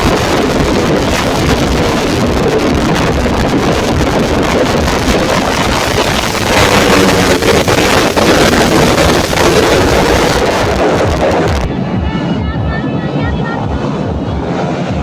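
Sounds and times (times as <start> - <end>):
motorcycle engines revving high: 0.0 - 11.7
wind buffeting microphone: 0.0 - 12.1.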